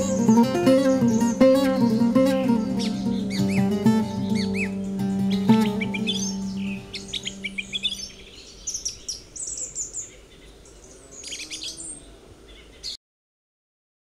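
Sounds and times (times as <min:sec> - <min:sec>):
held music chord: 0:00.0 - 0:08.4
small birds chirping: 0:00.0 - 0:13.0.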